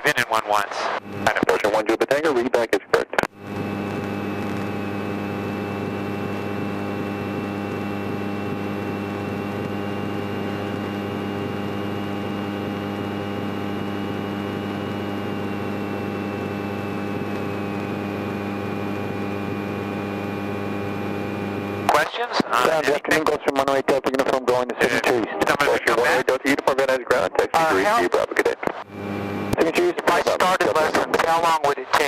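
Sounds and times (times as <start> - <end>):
thin high whine: 3.4 - 23.4, 28.7 - 32.0
airplane piston engine drone: 28.9 - 29.6.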